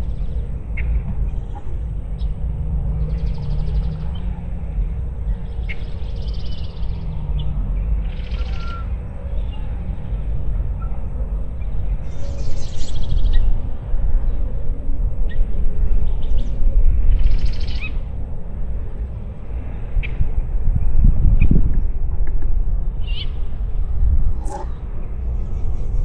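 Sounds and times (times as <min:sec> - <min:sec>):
wind noise on microphone: 0:00.0 - 0:26.0
birds buzzy calls: 0:24.4 - 0:25.0.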